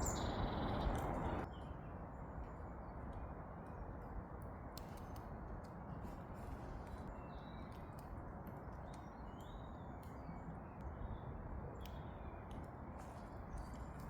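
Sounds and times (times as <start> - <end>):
high bird chirp: 0.0 - 1.4.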